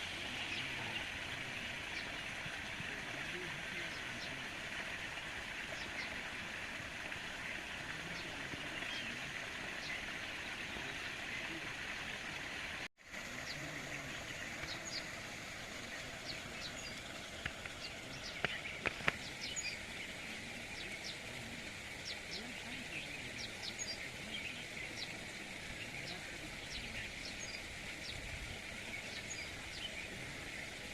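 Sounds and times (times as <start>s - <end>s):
steady hiss: 0.0s - 30.9s.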